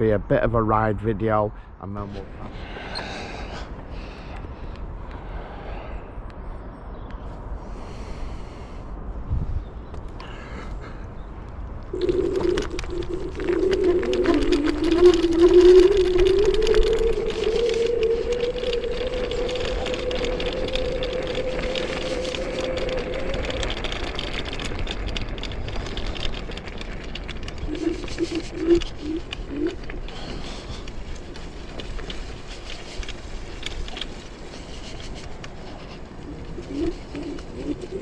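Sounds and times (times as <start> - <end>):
steady rumble: 1.6 - 38.0
pigeon cooing: 11.9 - 24.9, 27.2 - 38.0
electric scooter motors whining: 11.9 - 38.0.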